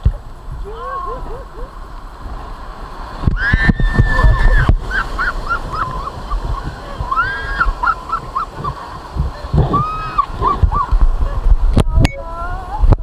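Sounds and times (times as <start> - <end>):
river rapids splashing: 0.0 - 12.8
people yelling: 0.6 - 1.8, 3.3 - 6.1, 6.7 - 8.2, 9.6 - 11.0.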